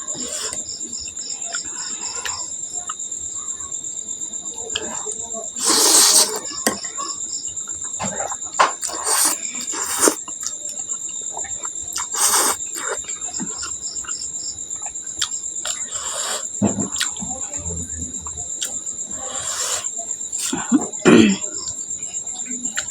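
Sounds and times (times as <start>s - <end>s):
person eating noisily: 0.0s - 3.0s, 5.6s - 6.9s, 8.8s - 14.1s, 14.8s - 17.2s, 18.0s - 21.2s
crickets chirping: 0.0s - 22.9s.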